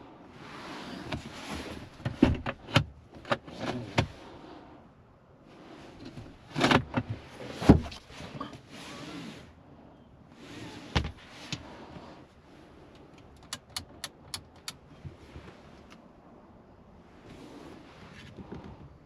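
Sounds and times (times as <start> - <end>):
clicks and knocks in car cabin: 1.1 - 4.2, 6.0 - 8.6, 10.9 - 11.7, 12.9 - 16.0, 18.1 - 19.0.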